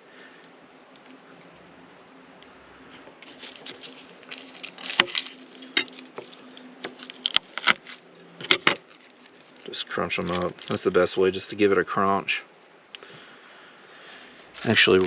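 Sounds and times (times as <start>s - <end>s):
aluminum foil crinkling: 3.2s - 11.4s, 14.4s - 15.0s.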